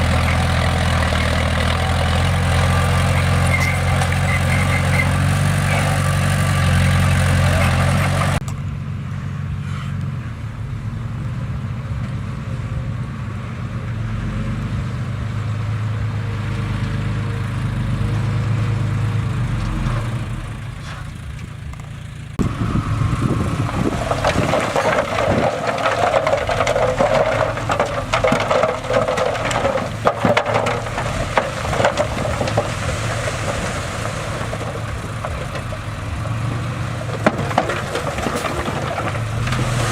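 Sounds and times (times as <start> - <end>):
bulldozer diesel engine: 0.0 - 39.9
machine knocks and clatter: 22.4 - 39.9.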